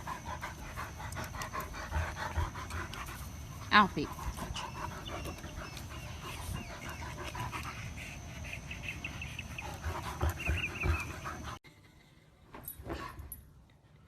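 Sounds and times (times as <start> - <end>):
dog panting: 0.0 - 11.6.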